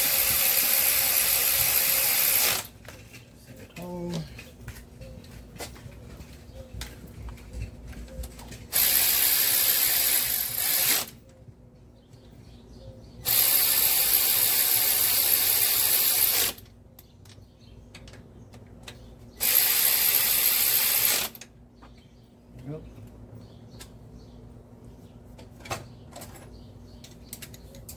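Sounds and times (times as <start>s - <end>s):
power ratchet running: 0.0s - 2.7s, 8.7s - 11.2s, 13.3s - 16.6s, 19.4s - 21.4s.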